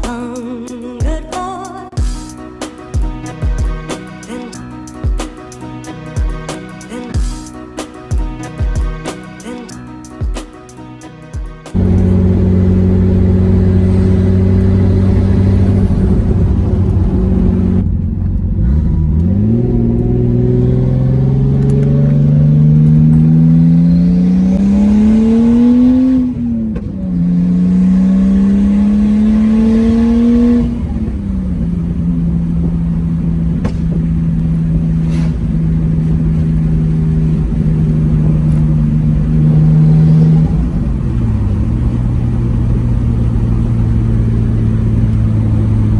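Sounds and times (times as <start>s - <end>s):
car engine revving: 11.7s - 45.9s.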